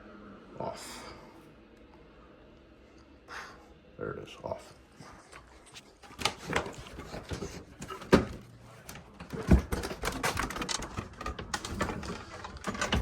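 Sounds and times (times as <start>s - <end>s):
handling knocks and thumps: 6.0s - 13.0s.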